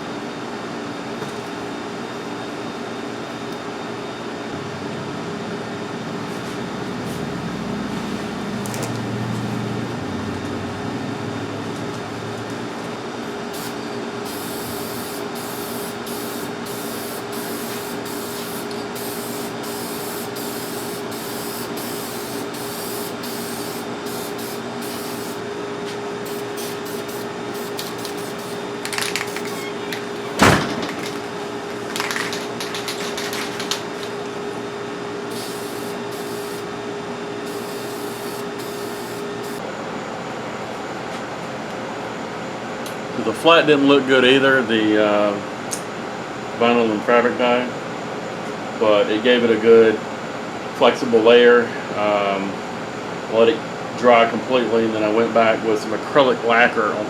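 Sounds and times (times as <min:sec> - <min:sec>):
steady hum: 0:02.0 - 0:43.5
paint spraying hiss: 0:13.5 - 0:30.4, 0:35.3 - 0:36.7, 0:37.5 - 0:39.6.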